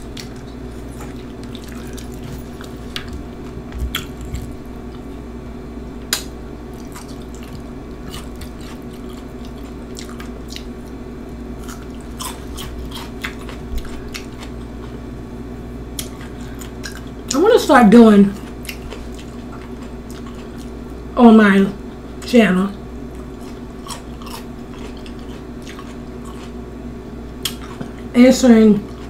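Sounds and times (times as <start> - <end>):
person chewing crunchy snacks: 0.0 - 5.1, 6.8 - 11.0, 11.6 - 15.0, 16.0 - 17.3, 18.3 - 20.9, 23.2 - 26.6, 27.4 - 28.0
steady low hum: 0.0 - 29.0.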